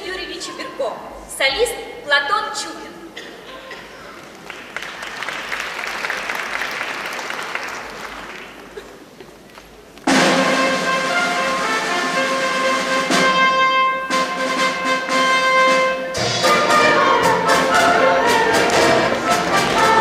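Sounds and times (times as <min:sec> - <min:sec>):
audience applauding: 0:04.2 - 0:09.2
orchestra playing loud chords: 0:10.1 - 0:20.0.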